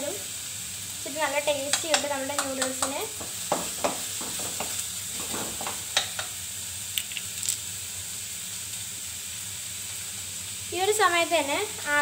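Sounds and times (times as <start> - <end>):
onion sizzling in hot oil: 0.0 - 12.0
wooden spatula scraping pan: 3.2 - 6.3.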